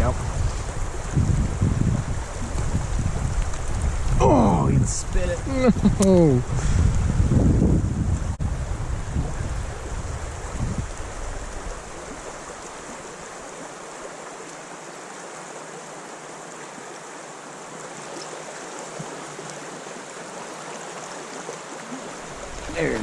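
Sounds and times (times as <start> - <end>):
wind buffeting microphone: 0.0 - 13.0, 22.2 - 23.0
creek water running: 0.0 - 23.0.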